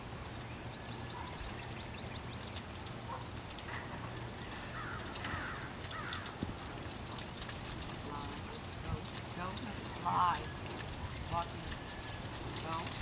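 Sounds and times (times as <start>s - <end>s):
birds chirping: 0.2s - 13.0s.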